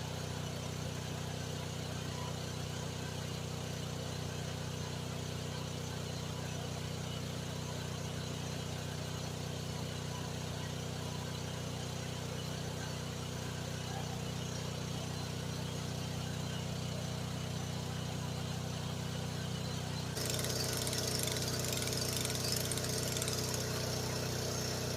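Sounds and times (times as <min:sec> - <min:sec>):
excavator engine running: 0:12.6 - 0:24.9.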